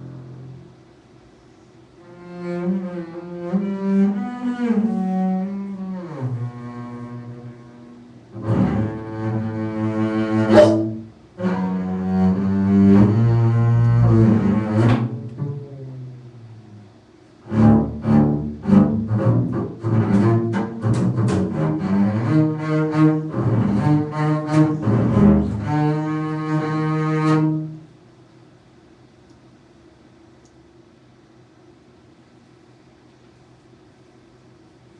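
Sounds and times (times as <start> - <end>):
solo cello playing: 2.0 - 16.2, 17.4 - 27.9.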